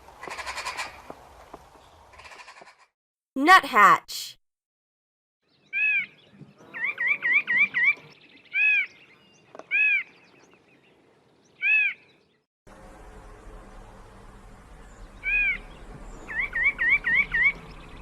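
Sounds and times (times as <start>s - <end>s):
bird whistled calls: 15.2s - 18.0s.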